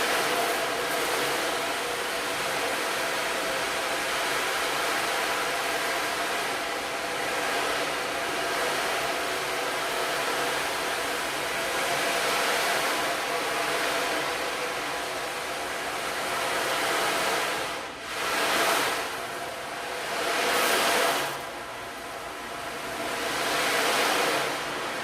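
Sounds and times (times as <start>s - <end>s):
ocean drum rushing wash: 0.0s - 25.0s.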